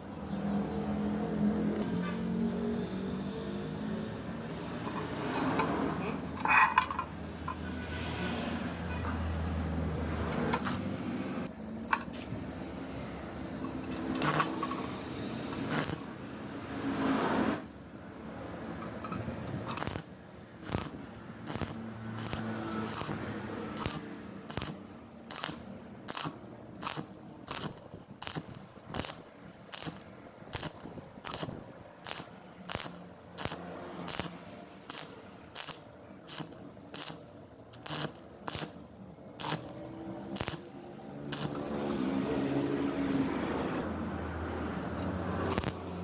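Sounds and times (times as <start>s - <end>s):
welder humming: 13.7s - 17.7s, 19.7s - 43.8s, 45.1s - 46.0s
welding arc crackling: 13.8s - 17.7s, 19.6s - 43.8s, 45.2s - 46.0s.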